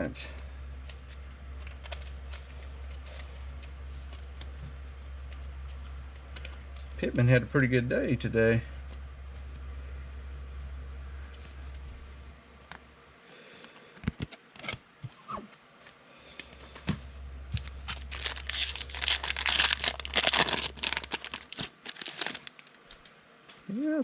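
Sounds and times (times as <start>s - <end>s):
wrapper being torn: 17.6s - 22.8s
wrapper crinkling: 17.6s - 23.1s.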